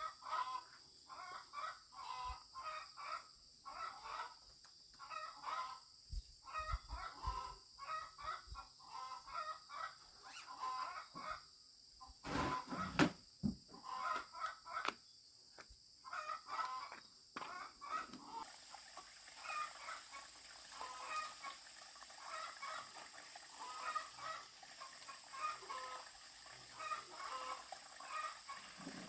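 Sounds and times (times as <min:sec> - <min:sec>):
chickens clucking: 0:16.1 - 0:29.0.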